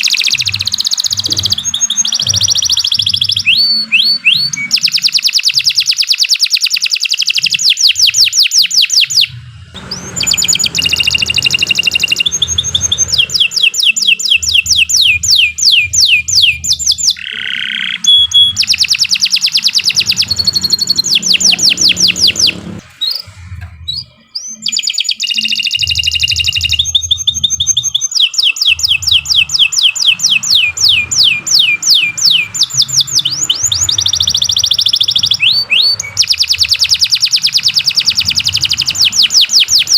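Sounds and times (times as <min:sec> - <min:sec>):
canary singing trills: 0:00.0 - 0:39.9
low rumble: 0:09.3 - 0:13.6.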